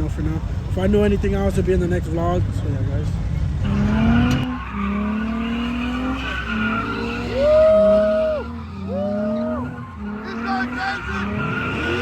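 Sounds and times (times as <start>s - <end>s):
car engine revving: 3.0s - 12.0s
tires squealing: 3.3s - 12.0s.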